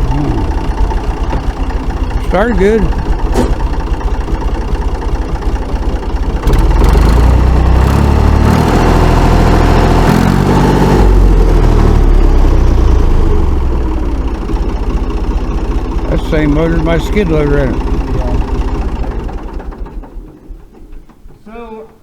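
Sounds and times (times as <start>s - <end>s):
diesel tractor engine revving: 0.0s - 21.0s.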